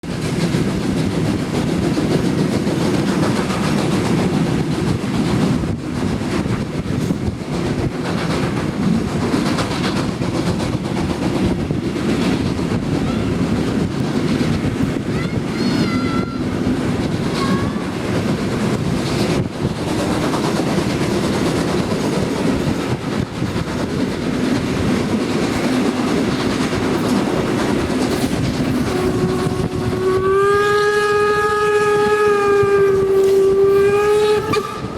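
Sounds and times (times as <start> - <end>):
train wheels rumbling on rail: 0.0 - 34.9
coach rattling: 16.7 - 30.3
locomotive whistle: 28.8 - 34.9.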